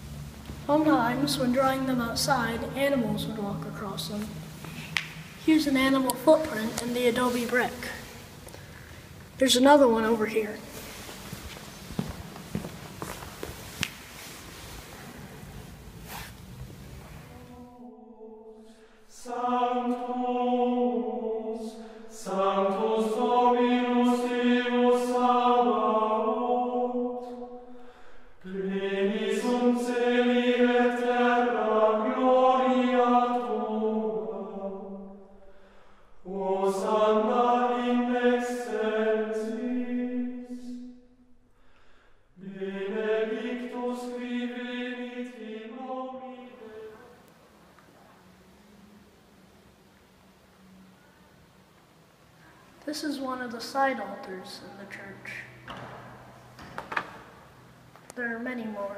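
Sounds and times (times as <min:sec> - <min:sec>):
chant sung in unison: 0:17.2 - 0:41.2, 0:42.4 - 0:47.3.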